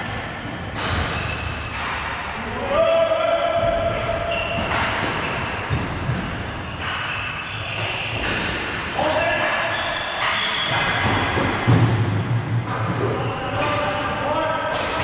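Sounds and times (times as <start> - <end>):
voices in echoing hall: 0.0 - 15.0
shoe squeaks on court: 6.6 - 8.4, 9.7 - 11.7, 14.5 - 15.0.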